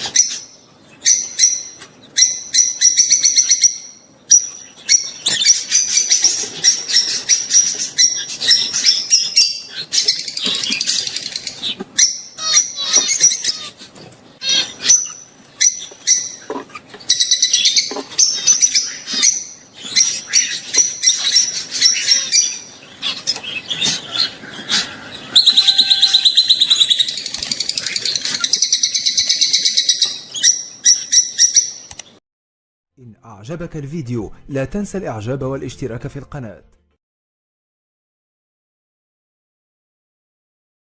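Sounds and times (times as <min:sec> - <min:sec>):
lovebirds chattering: 0:00.0 - 0:32.2.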